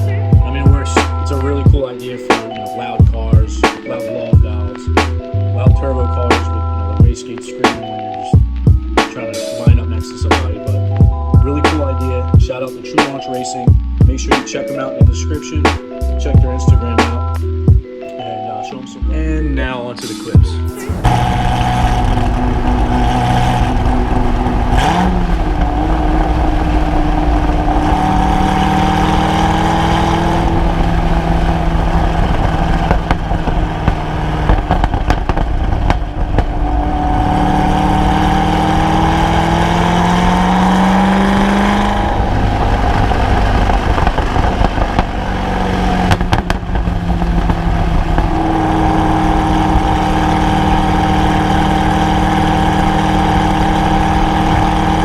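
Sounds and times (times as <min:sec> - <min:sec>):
exhaust crackle: 0:00.0 - 0:18.6, 0:20.0 - 0:55.0
car engine revving while driving: 0:20.7 - 0:55.0.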